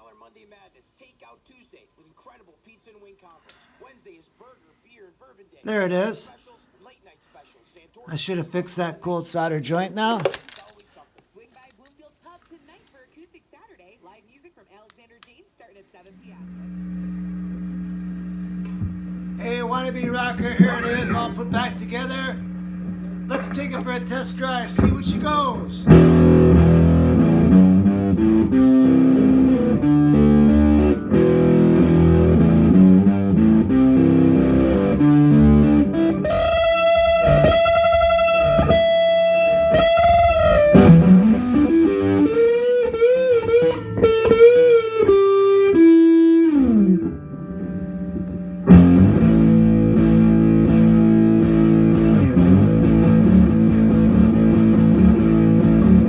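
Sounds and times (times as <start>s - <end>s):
electric guitar through amplifier: 16.2s - 56.0s.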